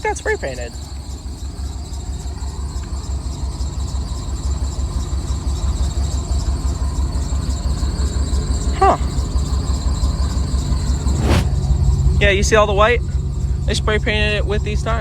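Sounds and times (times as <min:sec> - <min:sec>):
drive belt squealing: 0:00.0 - 0:15.0
truck engine running: 0:00.0 - 0:15.0.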